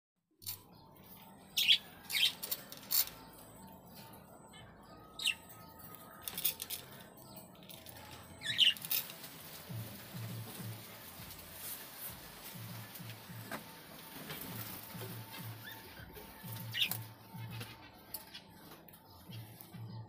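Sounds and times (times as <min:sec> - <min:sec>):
budgerigars chirping: 0:08.4 - 0:09.0, 0:15.5 - 0:17.0.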